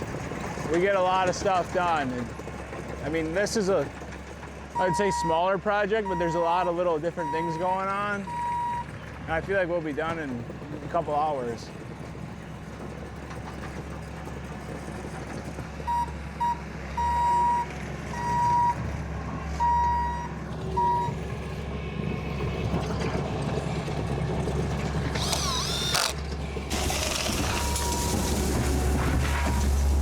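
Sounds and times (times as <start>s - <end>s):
engine hum: 0.0s - 30.0s
backup alarm beeping: 4.8s - 5.4s, 6.0s - 6.5s, 7.2s - 8.9s, 15.9s - 18.8s, 19.6s - 21.2s, 26.8s - 29.9s.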